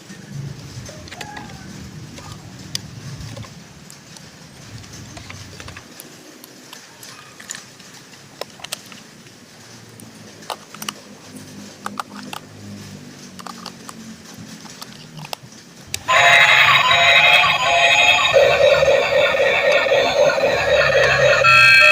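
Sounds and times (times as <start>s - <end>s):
toys clicking and knocking: 0.6s - 9.3s, 10.0s - 12.5s, 13.1s - 21.9s
electronic toy tune: 16.0s - 21.9s.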